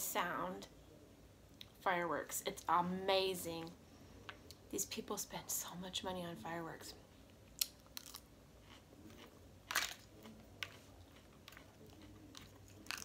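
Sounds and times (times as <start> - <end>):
chewing lettuce crunching: 7.6 - 13.0.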